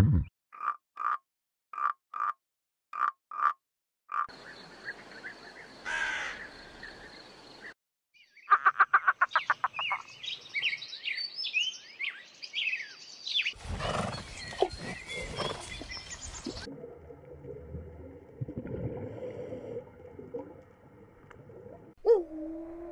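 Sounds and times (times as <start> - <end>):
crow cawing: 5.8 - 6.5.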